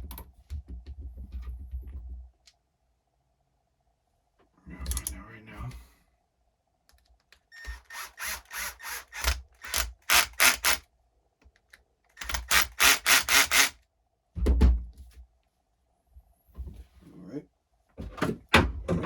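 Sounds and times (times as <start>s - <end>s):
drill clutch clicking: 7.6s - 10.8s, 12.2s - 13.7s.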